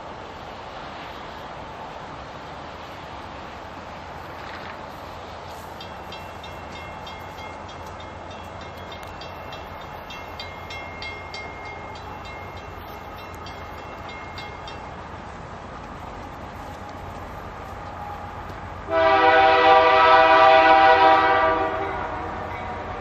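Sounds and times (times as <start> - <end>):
diesel train rumbling: 0.0 - 23.0
railway bell ringing: 5.4 - 15.1, 20.8 - 23.0.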